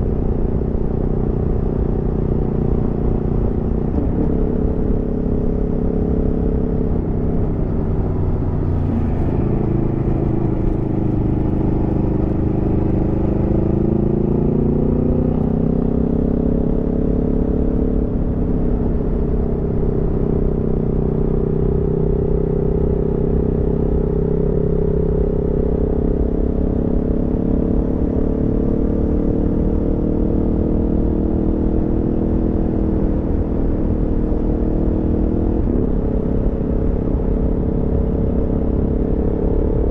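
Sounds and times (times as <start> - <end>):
motorcycle engine running: 0.1 - 24.1.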